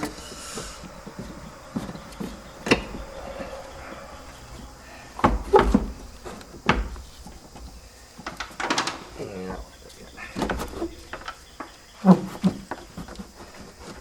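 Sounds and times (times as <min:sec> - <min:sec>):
metal tools clunking: 0:00.0 - 0:11.7.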